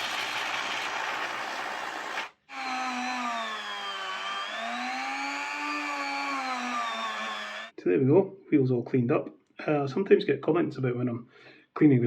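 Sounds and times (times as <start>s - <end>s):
rotary tool whining: 0.0s - 7.7s.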